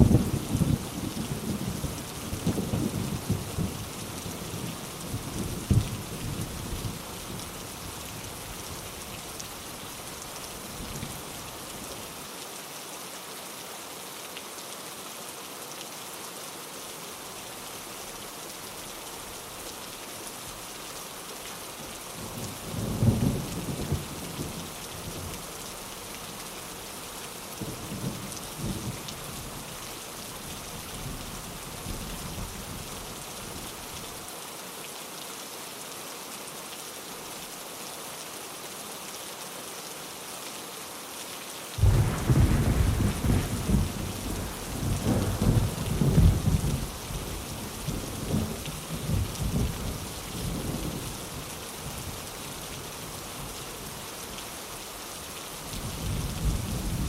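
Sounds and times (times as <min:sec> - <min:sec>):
heavy rain: 0:00.0 - 0:57.0
thunder rumbling and cracking: 0:41.8 - 0:47.0.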